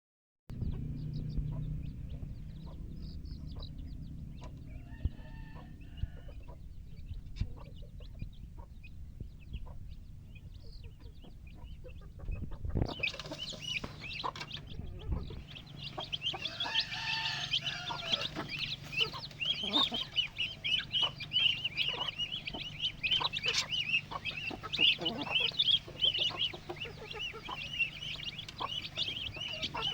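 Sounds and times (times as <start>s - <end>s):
baby chicks peeping: 0.5s - 29.9s
low rumble: 0.5s - 29.9s
longer lower calls: 15.7s - 23.2s.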